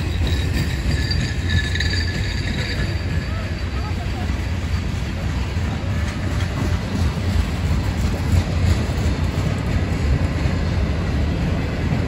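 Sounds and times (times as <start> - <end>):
freight cars rolling on rails: 0.0 - 12.0.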